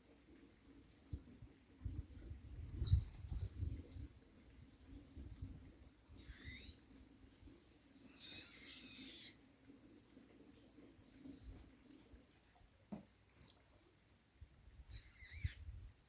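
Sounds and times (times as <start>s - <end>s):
bird calls and chattering: 2.8s - 3.1s, 6.2s - 6.9s, 8.0s - 9.4s, 11.2s - 11.9s, 14.8s - 15.7s.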